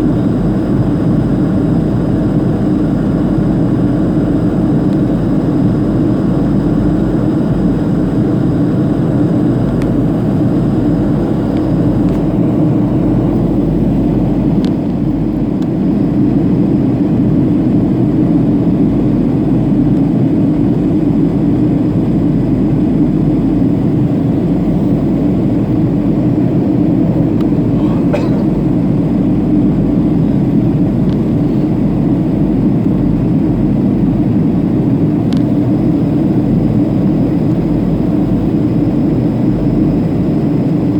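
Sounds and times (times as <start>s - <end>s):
jet engines droning in cabin: 0.0s - 40.9s
airflow: 26.2s - 29.6s.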